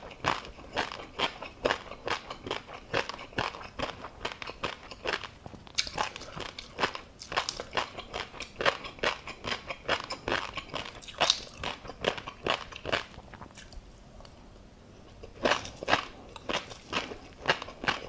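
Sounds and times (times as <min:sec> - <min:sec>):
crisp crunchy chewing: 0:00.0 - 0:14.4, 0:15.0 - 0:18.0.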